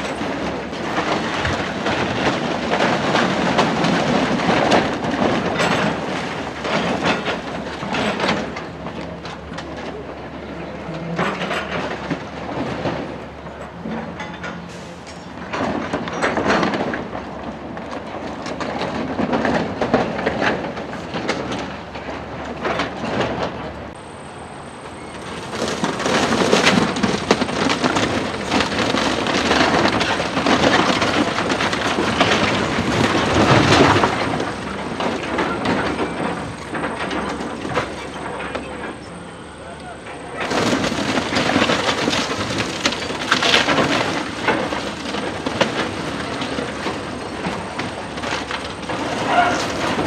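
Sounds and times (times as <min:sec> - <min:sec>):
building demolition crunching: 0:00.0 - 0:50.0.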